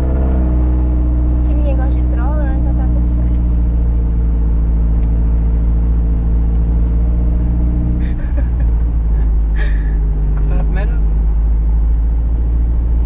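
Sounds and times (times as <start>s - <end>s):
car engine droning inside cabin: 0.0s - 13.0s.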